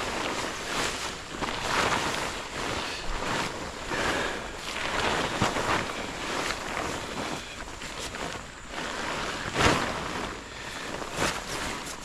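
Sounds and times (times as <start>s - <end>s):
lake water washing at shore: 0.0s - 12.0s
wind blowing over microphone: 0.0s - 12.0s.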